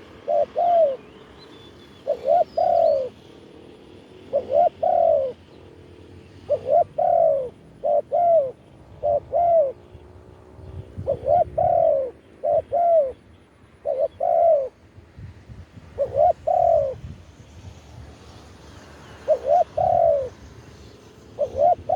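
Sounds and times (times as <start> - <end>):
dove cooing: 0.0 - 3.3, 4.2 - 5.6, 6.4 - 10.1, 10.9 - 14.8, 15.9 - 17.0, 19.2 - 20.4, 21.4 - 21.9.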